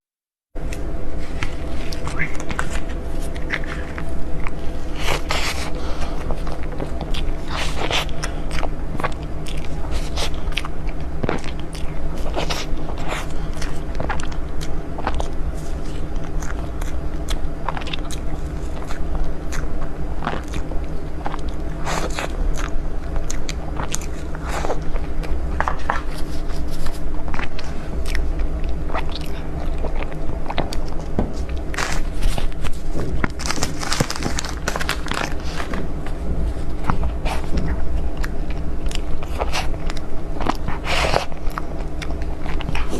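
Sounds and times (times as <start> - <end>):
steady low hum: 0.5 - 42.9
biting and chewing dessert: 0.6 - 42.9
sharp clicks and crunches: 20.2 - 42.9.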